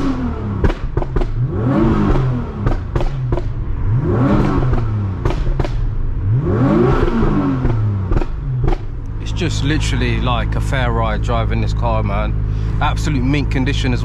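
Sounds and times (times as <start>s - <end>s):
exhaust pops and bangs: 0.0s - 6.1s, 6.9s - 9.7s
car engine revving: 0.0s - 14.0s.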